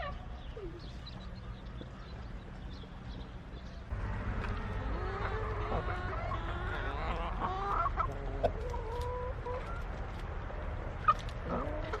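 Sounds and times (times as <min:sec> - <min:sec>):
hen clucking: 0:04.8 - 0:09.8, 0:11.0 - 0:12.0.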